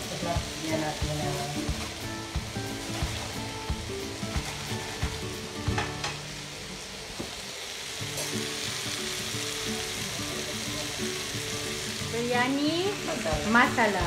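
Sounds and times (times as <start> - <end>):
sauce sizzling in a pot: 0.0 - 14.0.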